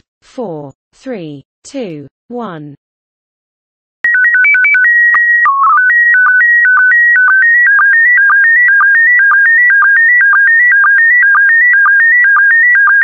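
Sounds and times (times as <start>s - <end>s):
stepping beeps: 4.1s - 13.0s.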